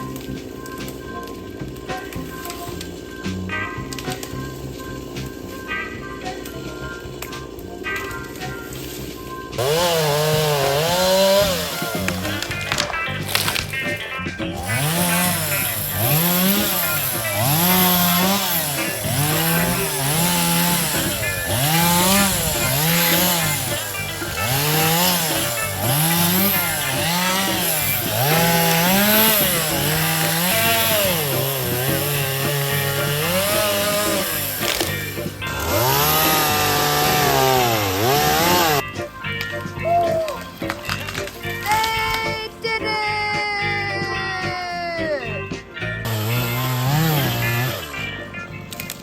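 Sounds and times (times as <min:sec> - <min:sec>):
chainsaw revving cutting wood: 0:09.6 - 0:38.9, 0:46.0 - 0:48.2.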